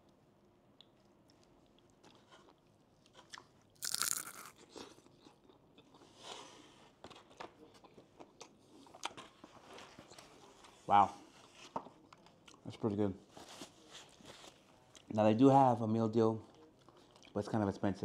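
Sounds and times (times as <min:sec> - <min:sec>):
chewing with crackles: 0:00.8 - 0:10.8, 0:11.4 - 0:12.7, 0:16.4 - 0:17.4
crunch of biting fried food: 0:03.2 - 0:05.6.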